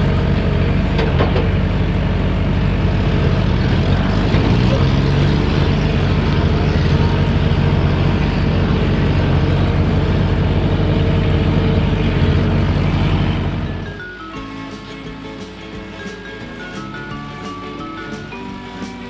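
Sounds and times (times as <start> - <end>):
heavy diesel engine running: 0.0 - 19.0
music: 0.0 - 19.0.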